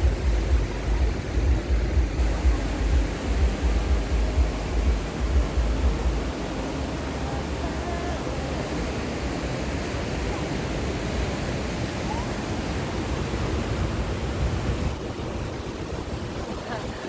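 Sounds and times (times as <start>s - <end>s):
low rumble: 0.0s - 8.9s
sea surf: 0.0s - 17.0s
wind: 0.0s - 17.0s.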